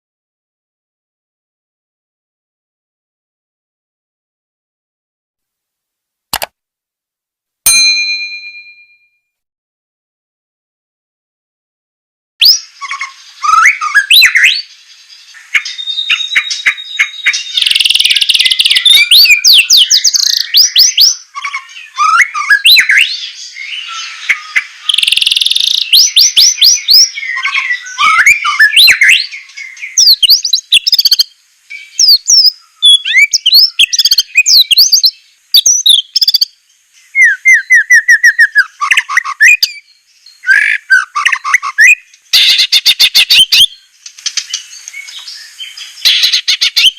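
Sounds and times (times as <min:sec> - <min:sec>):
songbird singing whistles: 0:12.4 - 0:43.8, 0:44.4 - 0:46.9.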